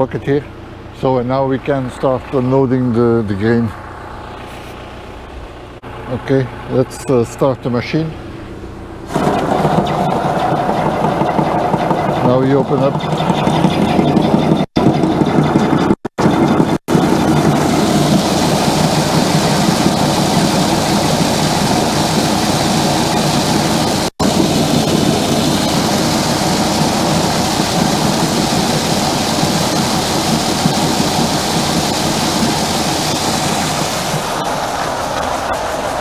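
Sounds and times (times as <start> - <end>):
grain auger running: 9.1 - 36.0
grain pouring hiss: 16.9 - 36.0.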